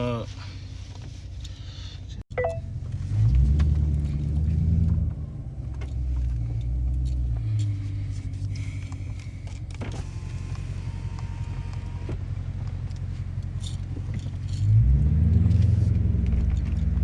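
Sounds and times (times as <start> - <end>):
car exhaust rumble: 0.4 - 17.0
brief beep: 2.3 - 2.7.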